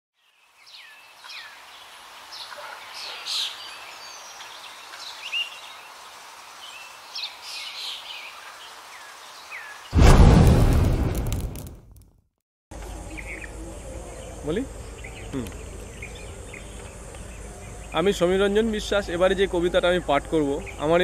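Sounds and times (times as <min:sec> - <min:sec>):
outdoor hiss: 0:00.2 - 0:11.7
sudden loud burst: 0:10.0 - 0:12.0
birds chirping: 0:12.8 - 0:21.0.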